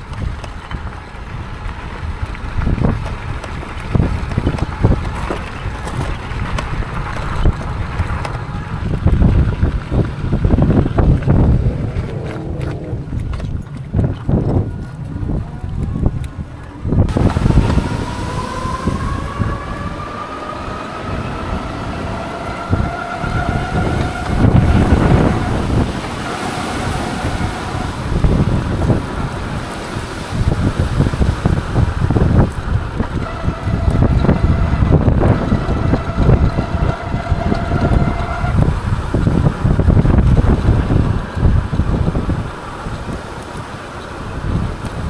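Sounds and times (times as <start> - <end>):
wind buffeting microphone: 0.0 - 45.0
electric motor whine: 17.1 - 40.2.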